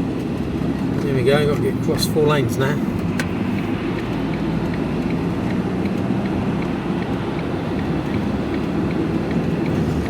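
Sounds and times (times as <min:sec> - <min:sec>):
vehicle engine and road noise: 0:00.0 - 0:10.0
faint regular ticking: 0:01.8 - 0:09.8.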